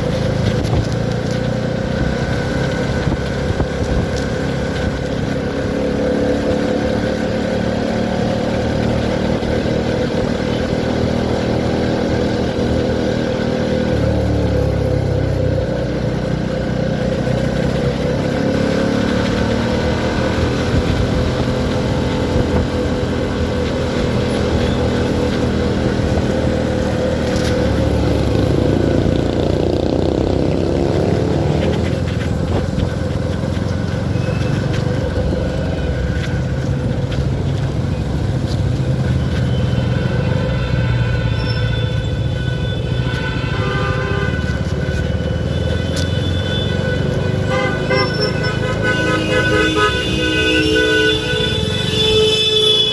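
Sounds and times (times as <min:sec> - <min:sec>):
motorcycle engine running: 0:00.0 - 0:40.3.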